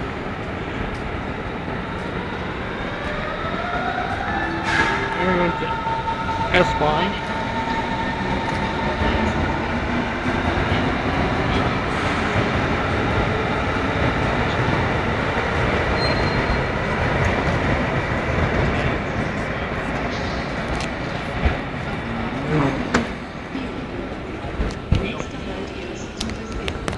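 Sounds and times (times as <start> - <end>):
train wheels rumbling on rails: 0.0 - 26.9.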